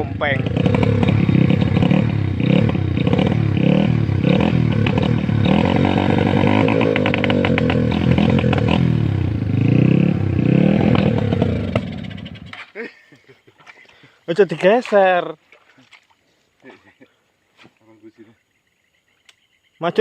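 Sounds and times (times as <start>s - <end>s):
diesel motorbike engine revving: 0.0s - 12.6s.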